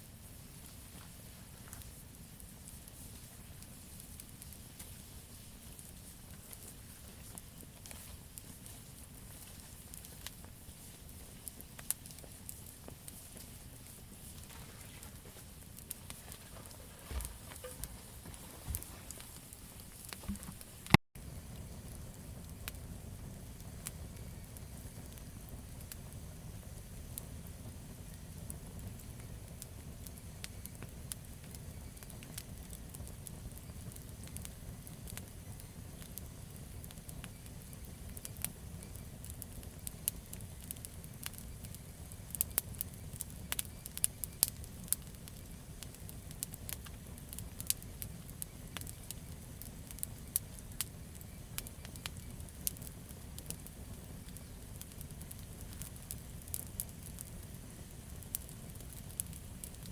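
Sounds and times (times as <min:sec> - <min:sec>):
fire popping and snapping: 0:00.0 - 0:59.9
low rumble of flame: 0:00.0 - 0:59.9.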